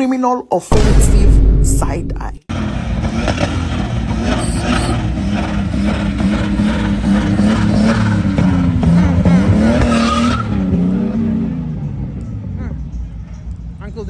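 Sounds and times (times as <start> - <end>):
car engine at high revs: 2.5 - 12.6
tyres skidding and squealing: 2.5 - 13.8.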